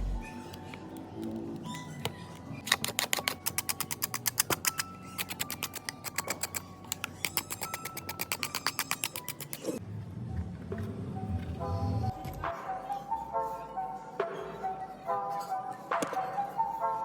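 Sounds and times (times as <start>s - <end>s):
hand tools clicking: 2.7s - 9.7s.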